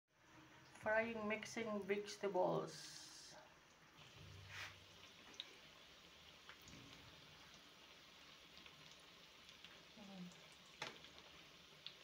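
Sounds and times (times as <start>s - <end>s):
food sizzling in hot oil: 0.2s - 12.0s
small oil pops: 10.8s - 11.2s.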